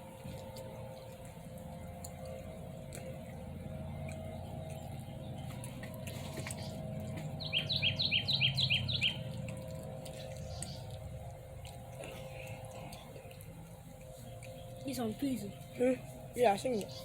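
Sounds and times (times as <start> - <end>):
steady low hum: 0.0 - 17.0
bird chirps: 6.3 - 9.4.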